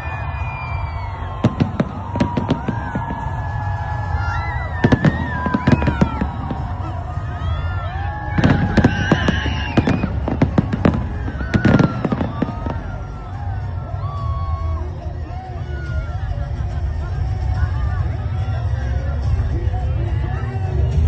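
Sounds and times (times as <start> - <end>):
whistling fireworks: 0.0 - 15.0
fireworks bangs and crackles: 0.0 - 19.9.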